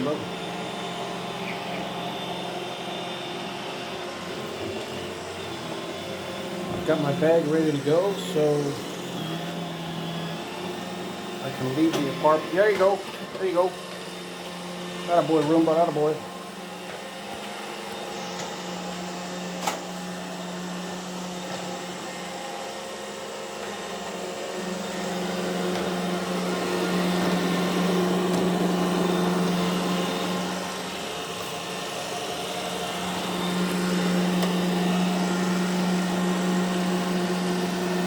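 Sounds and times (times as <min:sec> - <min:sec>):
robot vacuum running: 0:00.0 - 0:38.0.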